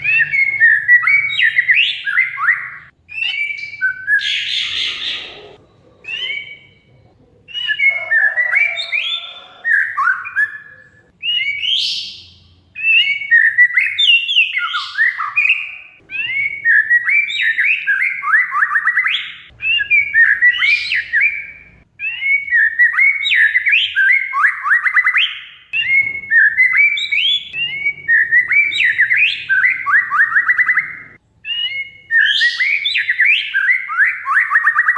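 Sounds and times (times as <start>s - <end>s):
bird singing whistled phrases: 0.0s - 6.8s, 7.5s - 34.9s
bird chattering trills: 3.4s - 11.0s, 25.8s - 33.7s.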